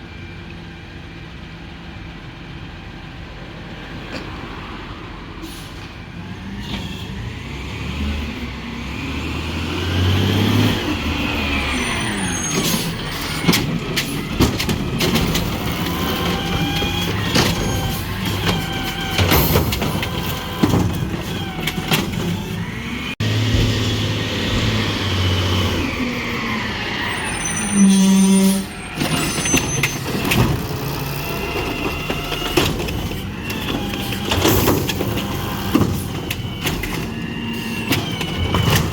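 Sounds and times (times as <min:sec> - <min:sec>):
garbage truck engine revving: 0:06.1 - 0:38.9
metallic bangs and clanks: 0:12.5 - 0:25.2.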